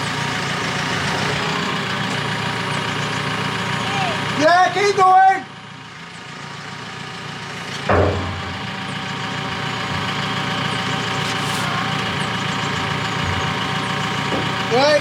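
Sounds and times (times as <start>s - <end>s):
diesel engine running: 0.0s - 15.0s
short thump: 7.9s - 8.6s.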